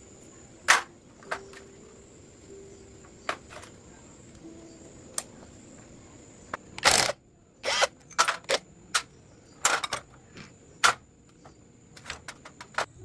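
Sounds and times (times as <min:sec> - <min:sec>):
sharp mechanical clicks and knocks: 0:06.5 - 0:13.0.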